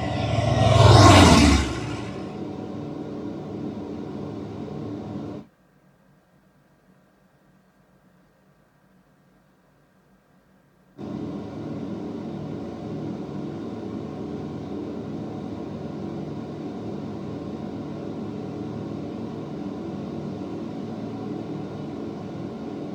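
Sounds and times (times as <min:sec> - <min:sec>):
aircraft engines droning: 0:00.0 - 0:05.4, 0:11.0 - 0:22.9.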